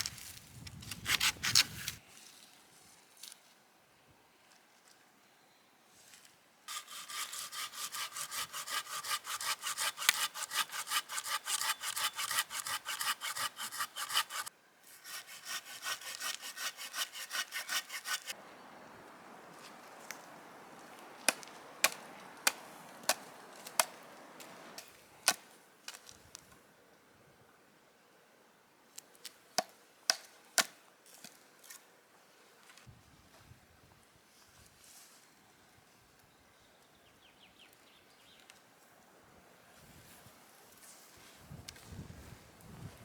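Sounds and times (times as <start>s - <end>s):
hand saw cutting wood: 0.9s - 2.0s, 6.7s - 18.4s
quiet rustle: 31.0s - 33.6s, 34.2s - 36.3s, 39.7s - 43.0s.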